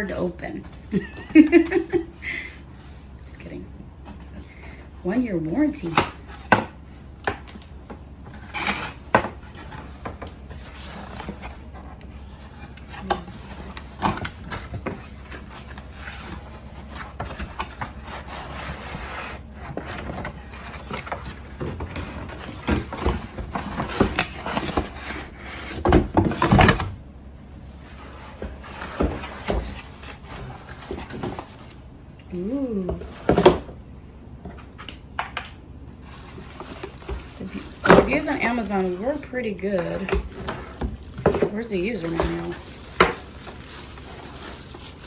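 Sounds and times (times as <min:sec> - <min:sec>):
cardboard box being handled: 0:35.9 - 0:45.0.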